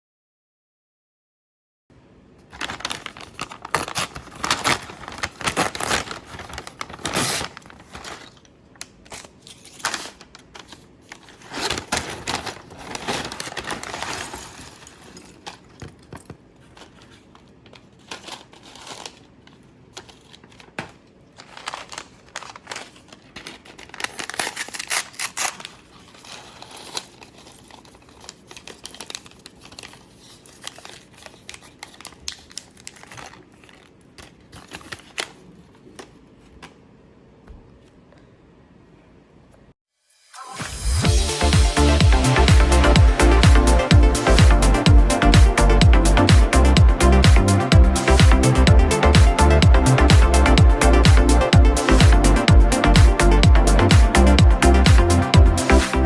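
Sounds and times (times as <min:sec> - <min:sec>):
plastic packaging crinkling and tearing: 0:02.4 - 0:36.7.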